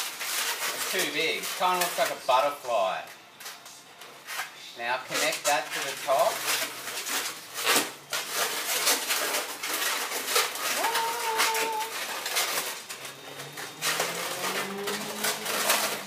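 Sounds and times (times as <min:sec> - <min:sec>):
balloons squeaking and rubbing: 0:05.8 - 0:16.0.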